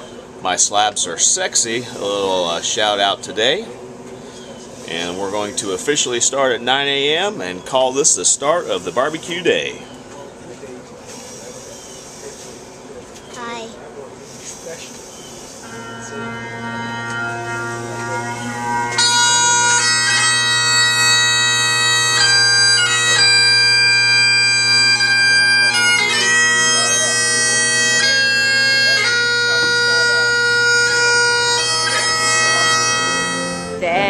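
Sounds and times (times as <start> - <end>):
bagpipe drone: 8.0 - 9.5, 15.6 - 34.0
bagpipe chanter melody: 15.6 - 34.0.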